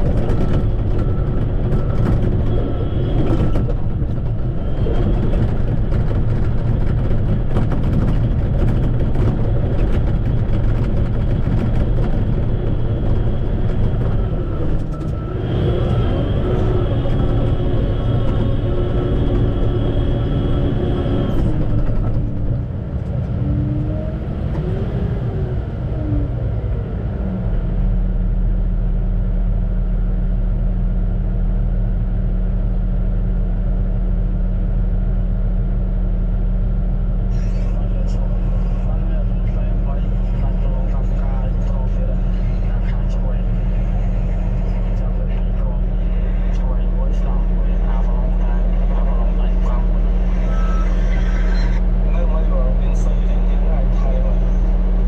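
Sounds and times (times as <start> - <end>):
machine clattering and clanking: 0.0 - 22.7
bulldozer diesel engine running: 0.0 - 55.0.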